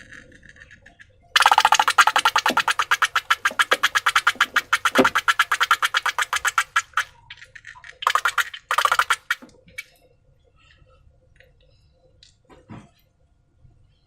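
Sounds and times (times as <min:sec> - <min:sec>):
slime squelching by hand: 0:01.4 - 0:07.1.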